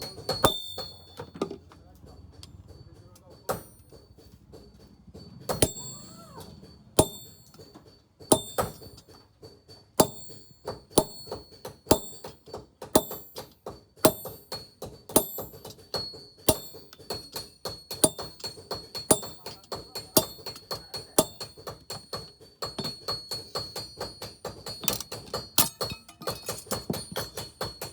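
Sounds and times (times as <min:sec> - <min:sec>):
sharp metallic strikes ringing: 0:00.0 - 0:01.4, 0:05.4 - 0:07.7.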